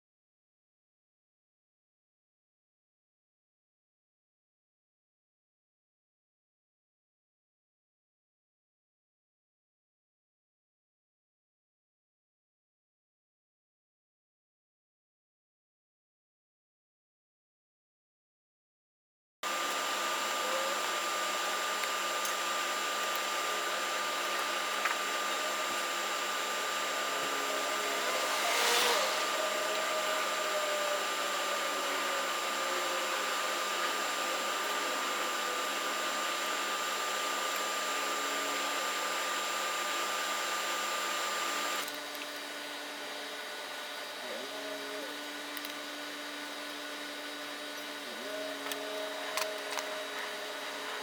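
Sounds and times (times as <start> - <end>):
machine running with whining hiss: 19.4 - 51.0.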